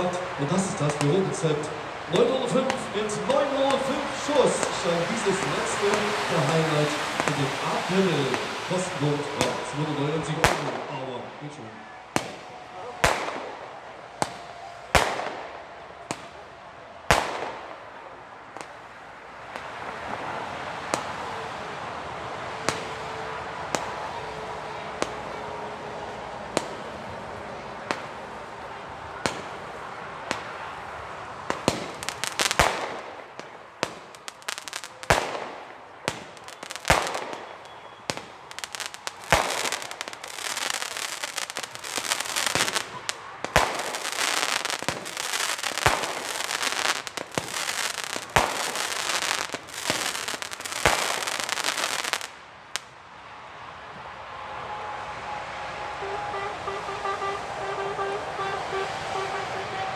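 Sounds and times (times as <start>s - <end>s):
fireworks hissing and popping: 0.0s - 11.6s, 27.8s - 52.8s
fireworks shots: 0.0s - 21.2s, 22.6s - 52.8s.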